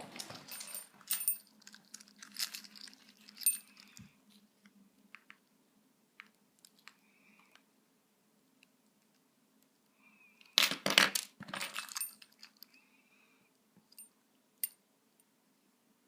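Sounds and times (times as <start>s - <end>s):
objects clattering on tabletop: 10.6s - 12.1s.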